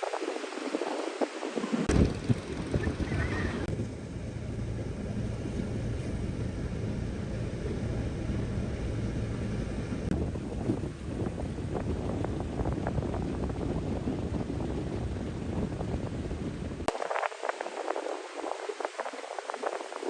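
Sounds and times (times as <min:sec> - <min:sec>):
wind noise: 0:00.0 - 0:07.1, 0:08.2 - 0:20.0
vehicle engine low hum: 0:01.9 - 0:17.0.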